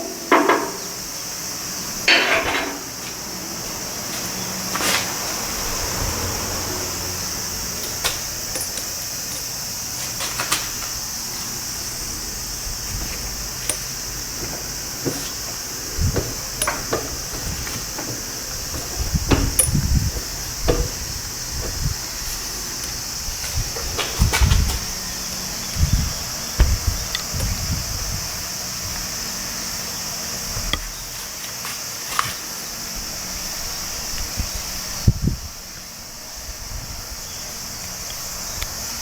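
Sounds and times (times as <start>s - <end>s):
steady high hiss: 0.0s - 39.0s
clicks and metallic clinks: 7.8s - 10.7s, 13.6s - 13.9s, 16.5s - 17.5s, 18.7s - 19.9s.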